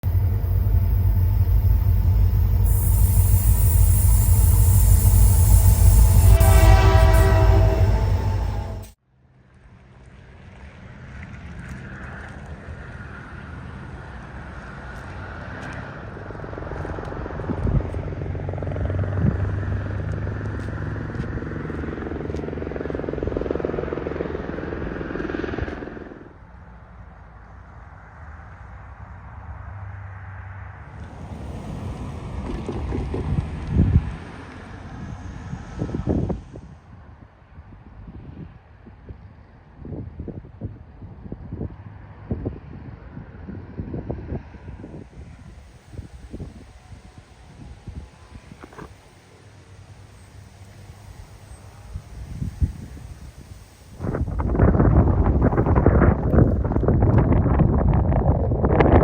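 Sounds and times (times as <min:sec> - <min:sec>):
diesel locomotive engine throbbing: 0:00.0 - 0:09.0, 0:13.2 - 0:37.0, 0:43.2 - 0:59.0
steady pitched tone: 0:00.0 - 0:09.0
train rumbling by: 0:00.0 - 0:09.0, 0:11.8 - 0:59.0.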